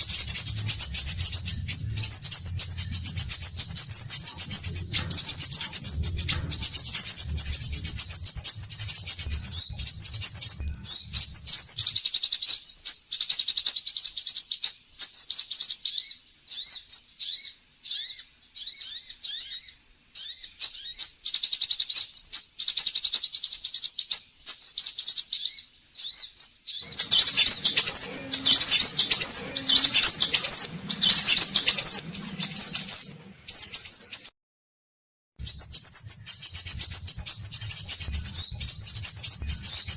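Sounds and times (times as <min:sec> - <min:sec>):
rough noise: 0:00.0 - 0:12.1, 0:26.9 - 0:34.3, 0:35.4 - 0:39.9
bird singing high chirping phrases: 0:35.4 - 0:39.9.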